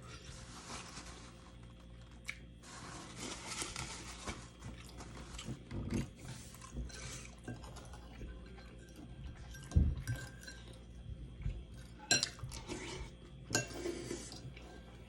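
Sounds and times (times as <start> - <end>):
wet chewing and mouth sounds: 1.6 - 2.6.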